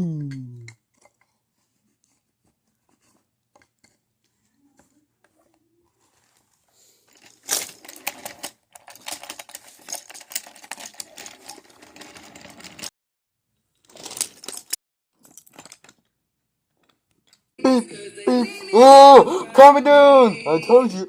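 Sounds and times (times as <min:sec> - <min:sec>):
small hard objects clattering: 0:06.0 - 0:12.9, 0:13.8 - 0:16.2.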